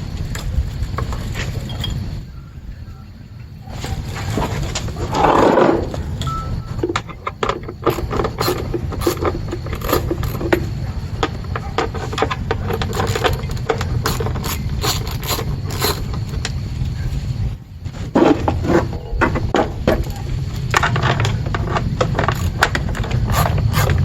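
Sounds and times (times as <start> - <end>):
steady low hum: 0.0 - 24.0
plastic parts clicking and scraping: 3.8 - 16.6, 18.0 - 24.0.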